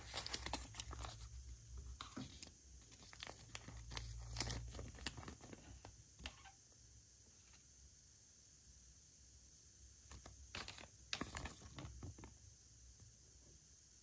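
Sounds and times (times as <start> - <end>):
packaging crinkling and tearing: 0.0 - 1.3, 2.3 - 5.5.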